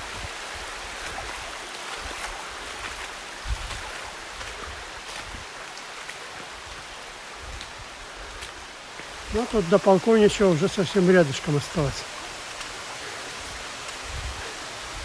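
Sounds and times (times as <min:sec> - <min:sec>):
stream flowing over rocks: 0:00.0 - 0:15.0.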